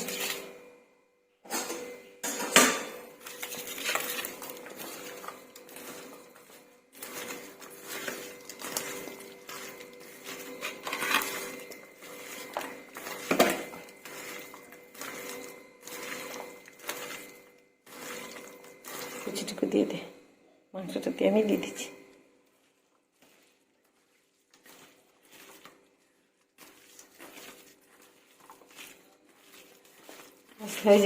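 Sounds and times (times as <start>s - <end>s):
dishes and utensils clinking: 0.0s - 0.5s, 1.4s - 19.7s.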